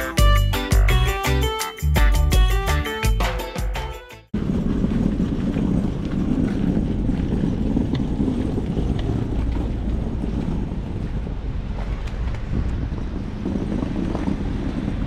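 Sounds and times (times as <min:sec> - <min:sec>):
wind buffeting microphone: 0:04.3 - 0:15.0
low engine rumble: 0:04.4 - 0:15.0.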